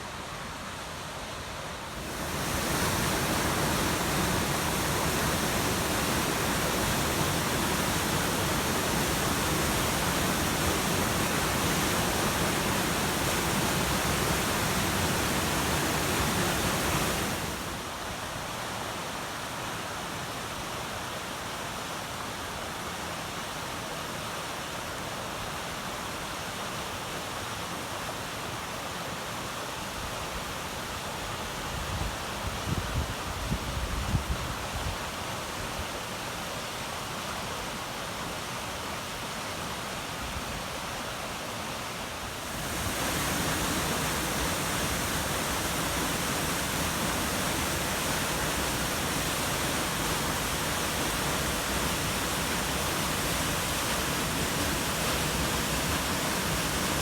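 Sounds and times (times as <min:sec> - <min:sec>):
waterfall rushing: 0:01.4 - 0:18.4, 0:36.8 - 0:57.0.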